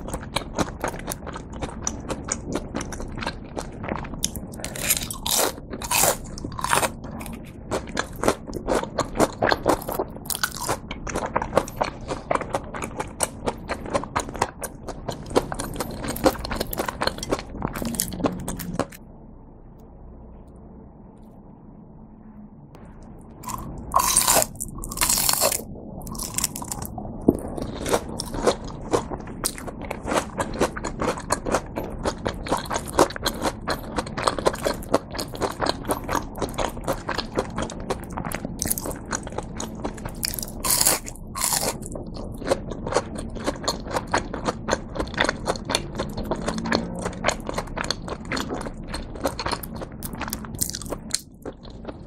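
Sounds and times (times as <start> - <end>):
crunchy chewing: 0.0 - 19.0, 23.3 - 52.0
crunchy bites into fried crust: 40.1 - 46.1.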